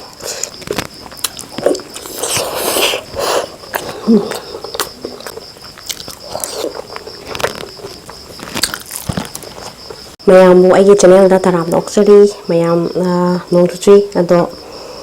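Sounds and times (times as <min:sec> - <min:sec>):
biting and chewing: 0:00.0 - 0:10.1.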